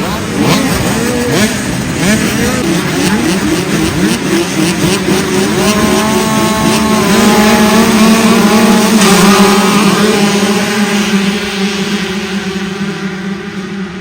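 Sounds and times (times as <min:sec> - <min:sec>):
motocross bikes revving: 0:00.0 - 0:14.0.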